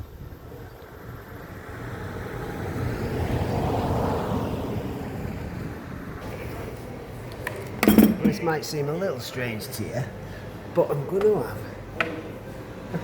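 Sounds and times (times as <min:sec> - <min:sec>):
road vehicle passing by: 0:01.0 - 0:07.0.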